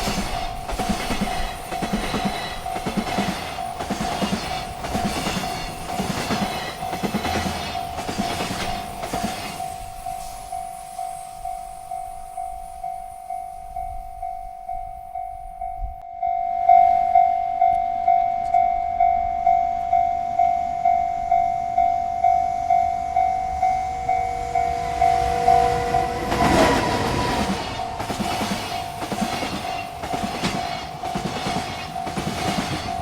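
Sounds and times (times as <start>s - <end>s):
approaching freight train: 0.0s - 33.0s
railroad crossing bell dinging: 0.0s - 33.0s
train horn: 23.0s - 29.0s.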